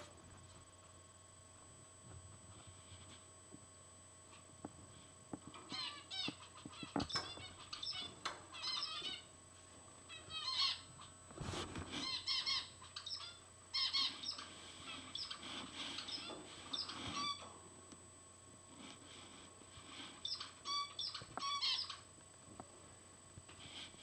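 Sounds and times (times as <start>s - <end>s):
finches beeping calls: 5.5s - 9.3s, 10.1s - 11.1s, 12.0s - 17.5s, 19.9s - 22.1s.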